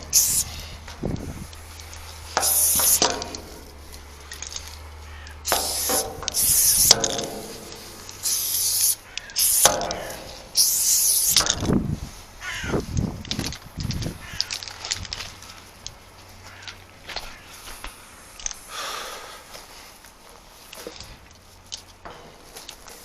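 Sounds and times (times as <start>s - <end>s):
spray paint can hissing: 0.0s - 0.8s, 1.4s - 4.6s, 5.4s - 11.7s.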